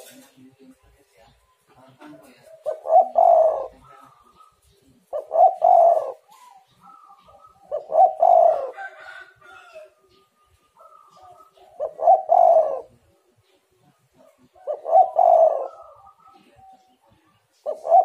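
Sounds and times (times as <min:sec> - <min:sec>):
dove cooing: 0:02.0 - 0:13.2, 0:14.1 - 0:18.0
high bird calls: 0:02.4 - 0:13.6.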